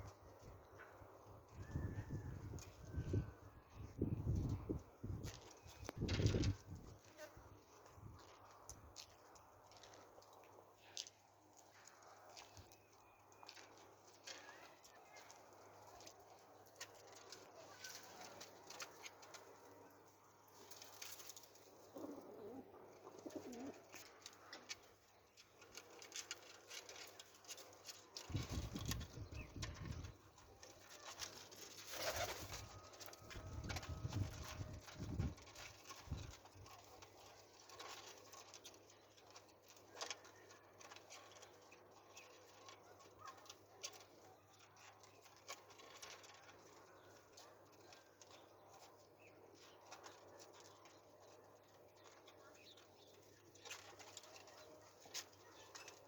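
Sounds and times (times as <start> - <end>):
pigeons cooing: 21.8 - 24.2.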